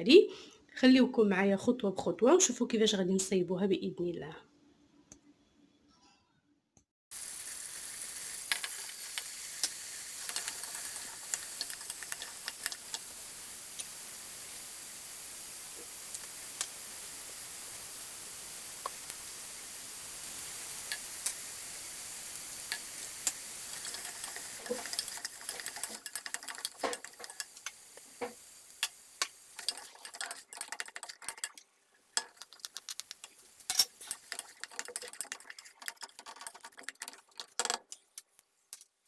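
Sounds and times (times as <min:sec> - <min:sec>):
vegetables sizzling in oil: 0:07.1 - 0:37.1
utensil scraping and clicking on pot: 0:22.7 - 0:38.9.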